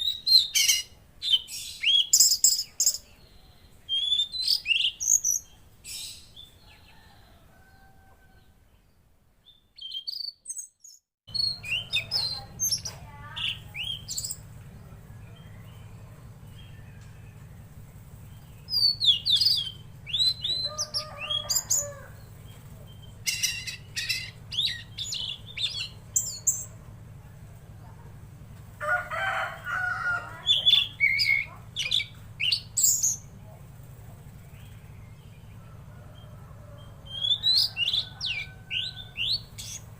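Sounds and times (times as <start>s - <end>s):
bird chirping and whistling: 0.0s - 3.0s, 3.9s - 5.4s, 9.8s - 14.4s, 18.7s - 21.8s, 23.0s - 26.7s, 30.5s - 33.2s, 37.0s - 39.9s
steady low hum: 11.3s - 39.9s.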